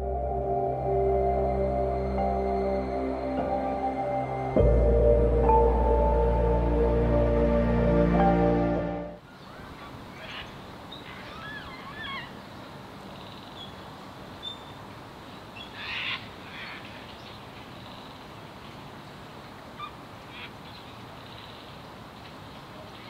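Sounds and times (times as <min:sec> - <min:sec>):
faint outdoor hiss: 0:00.0 - 0:23.0
wild birds calling: 0:09.2 - 0:14.8, 0:15.4 - 0:18.5, 0:19.7 - 0:23.0.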